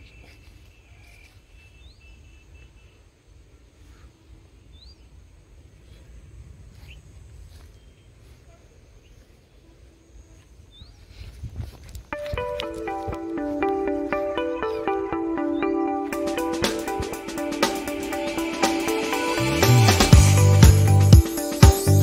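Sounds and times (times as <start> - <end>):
steady low rumble: 4.4 - 9.5
small bird chirping: 10.3 - 13.1.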